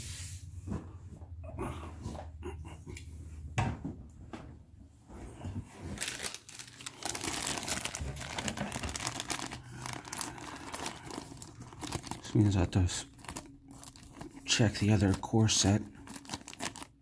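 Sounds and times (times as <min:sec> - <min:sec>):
plastic bags crinkling: 0:05.7 - 0:17.0.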